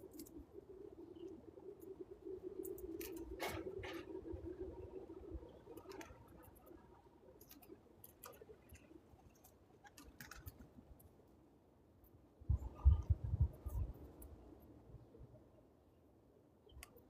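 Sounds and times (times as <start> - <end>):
squirrel chewing seed clicks: 7.4 - 10.7.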